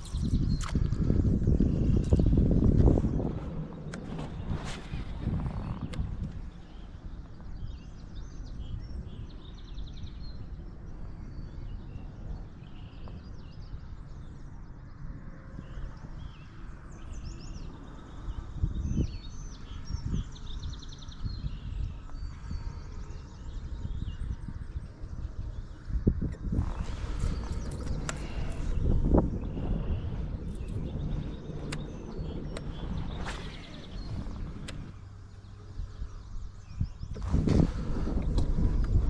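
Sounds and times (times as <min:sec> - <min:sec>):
small birds chirping: 0:00.0 - 0:39.0
steady low rumble: 0:00.0 - 0:39.0
low thumps: 0:26.4 - 0:35.0.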